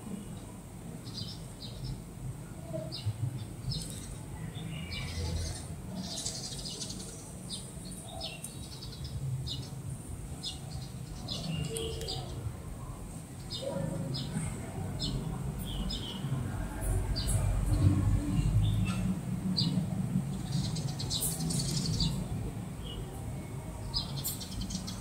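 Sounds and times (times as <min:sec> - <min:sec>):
small birds chirping: 0:01.0 - 0:16.4, 0:18.4 - 0:23.2, 0:23.8 - 0:25.0
steady low rumble: 0:12.3 - 0:22.8.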